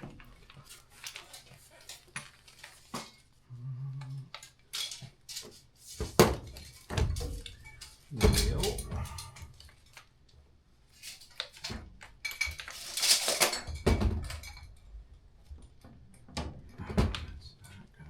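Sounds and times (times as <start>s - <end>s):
metal tools clinking: 6.6s - 10.0s, 11.0s - 14.7s.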